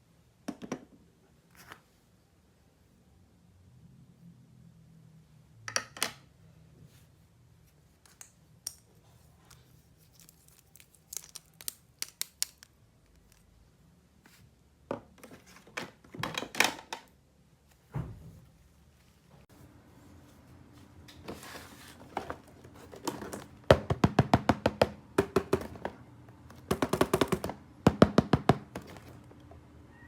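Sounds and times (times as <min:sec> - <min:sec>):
packaging crinkling and tearing: 0:10.0 - 0:13.5
plastic toy pieces clicking: 0:10.9 - 0:13.4.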